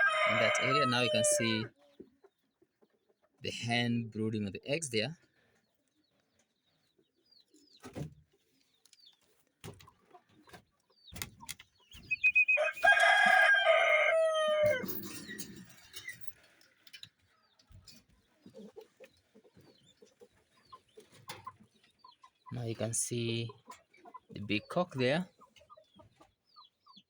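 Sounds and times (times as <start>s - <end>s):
rooster crowing: 0.0s - 1.7s, 12.4s - 15.1s
chirps: 5.4s - 13.4s, 14.8s - 27.0s.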